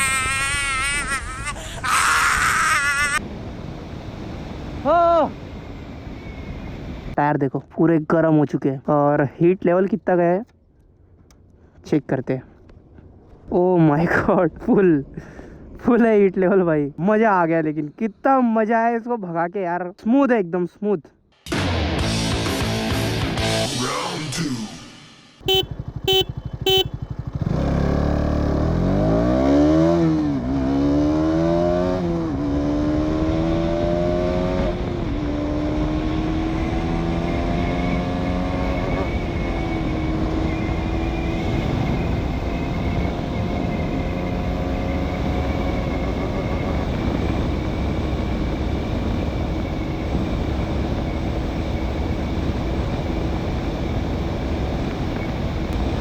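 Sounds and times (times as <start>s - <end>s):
wind and road noise: 0.0s - 20.3s, 25.4s - 56.0s
motorcycle engine accelerating: 25.4s - 56.0s.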